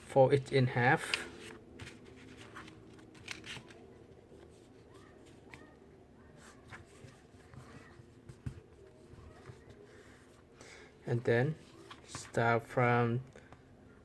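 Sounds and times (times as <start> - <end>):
paper being folded: 1.0 - 5.8
paper crackles: 1.0 - 5.8.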